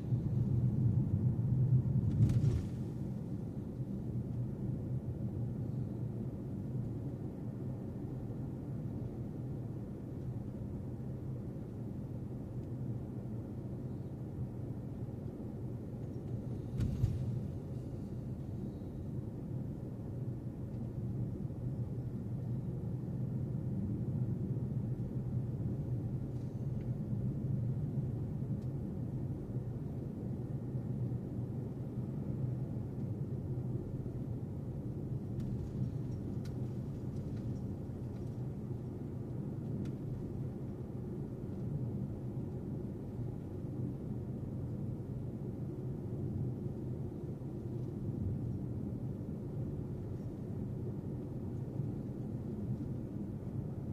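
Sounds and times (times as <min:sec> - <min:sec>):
car road and engine rumble: 0:00.0 - 0:05.5.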